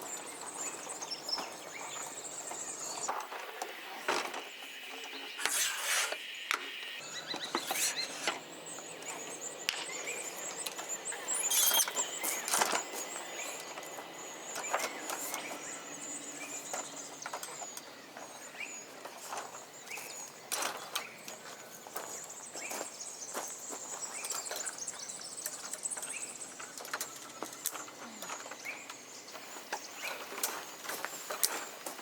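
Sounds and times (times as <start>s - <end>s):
high insect drone: 0.0s - 20.4s
objects being handled: 11.3s - 12.8s.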